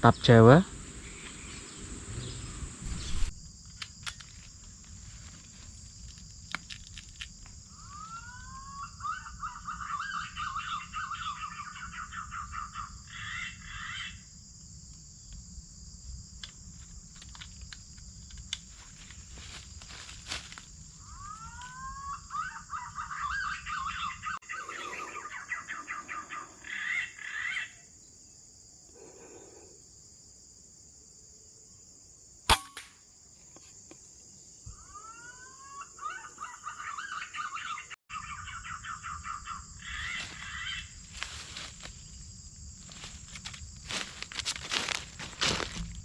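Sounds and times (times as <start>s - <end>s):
insects buzzing: 0.0s - 46.0s
sharp crack: 32.5s - 33.0s.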